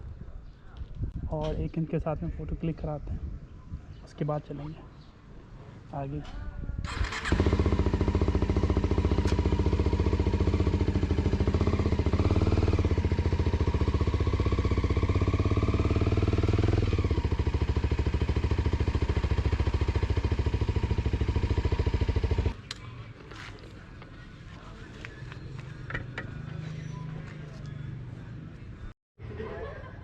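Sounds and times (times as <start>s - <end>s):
motorcycle engine running: 6.9s - 22.6s.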